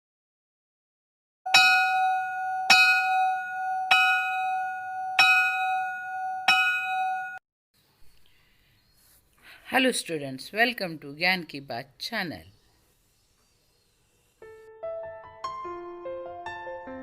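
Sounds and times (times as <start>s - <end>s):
bell ringing: 1.5s - 7.4s.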